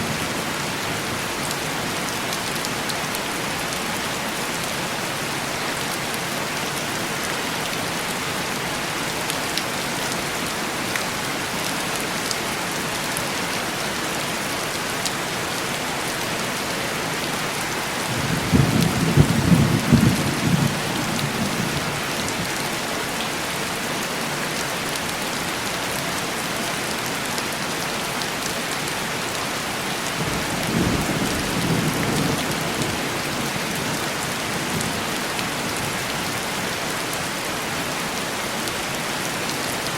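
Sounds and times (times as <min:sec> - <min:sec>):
heavy rain on window glass: 0:05.7 - 0:37.6
low rumbles of thunder: 0:18.1 - 0:22.0.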